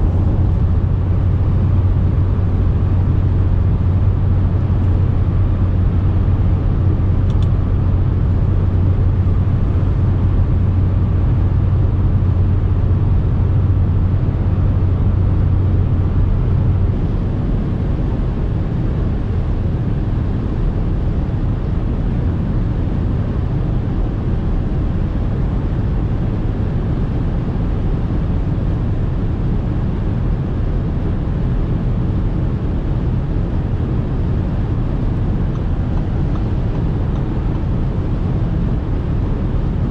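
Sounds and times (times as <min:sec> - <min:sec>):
car engine drone: 0:00.0 - 0:39.9
road and wind rumble: 0:00.0 - 0:39.9.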